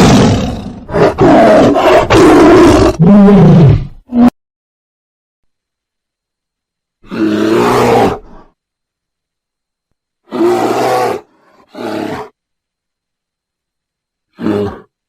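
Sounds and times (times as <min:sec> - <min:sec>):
large animal roaring: 0:00.0 - 0:04.3, 0:07.0 - 0:08.5, 0:10.3 - 0:12.3, 0:14.3 - 0:14.9.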